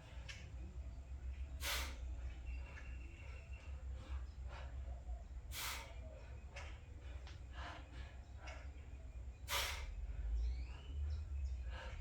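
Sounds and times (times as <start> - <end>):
man breathing hard: 2.6 - 11.0, 11.6 - 12.0.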